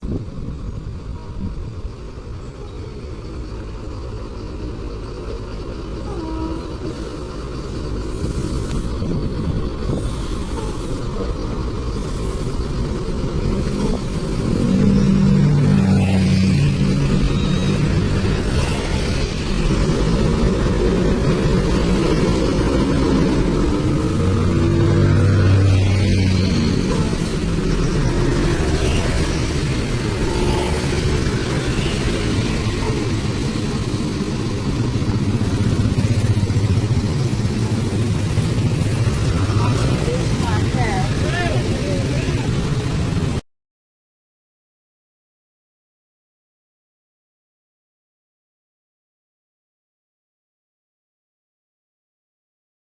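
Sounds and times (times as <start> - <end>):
vehicle engine idling: 0.1 - 18.6, 19.2 - 43.0.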